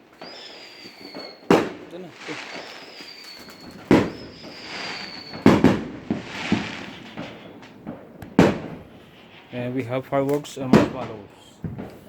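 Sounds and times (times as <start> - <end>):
firework whistle dropping in pitch: 0.0 - 1.5, 2.2 - 7.4
firework bangs: 0.0 - 12.0
firework crackling hiss: 0.0 - 12.0.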